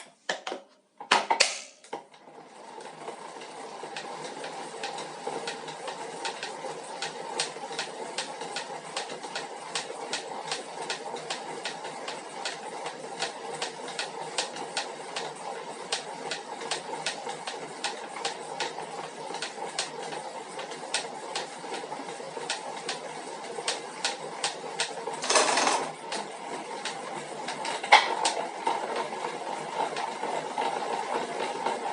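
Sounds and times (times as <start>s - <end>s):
bike trainer humming: 23.7s - 26.4s.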